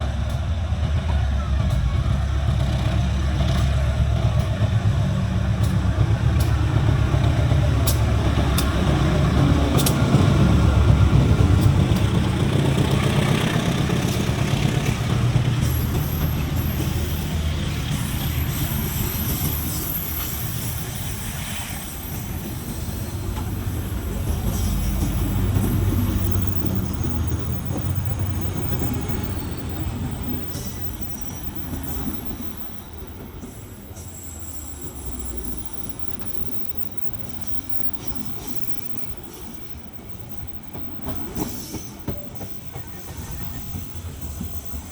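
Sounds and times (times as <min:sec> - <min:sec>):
diesel locomotive rumble: 0:00.0 - 0:44.9
train wheel clicks: 0:02.6 - 0:21.5, 0:22.2 - 0:33.6, 0:35.1 - 0:44.9
faint wheel squeal: 0:15.6 - 0:44.9.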